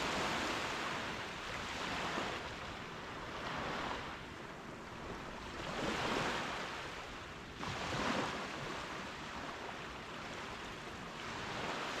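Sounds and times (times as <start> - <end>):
ocean waves washing onto beach: 0.0 - 12.0.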